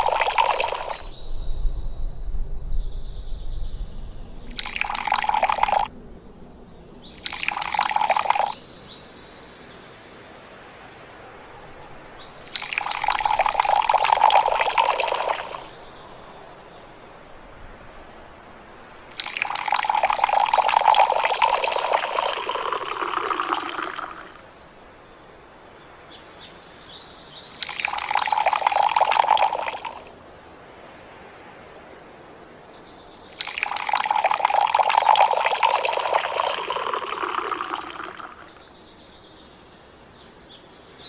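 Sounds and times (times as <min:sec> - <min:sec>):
water pouring: 0:00.0 - 0:01.1, 0:04.4 - 0:05.9, 0:07.0 - 0:08.6, 0:12.2 - 0:15.8, 0:18.9 - 0:24.5, 0:27.5 - 0:30.1, 0:33.2 - 0:38.6.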